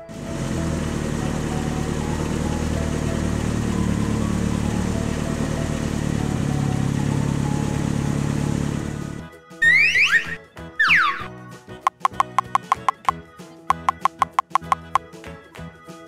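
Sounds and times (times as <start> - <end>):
car engine humming: 0.0 - 9.2.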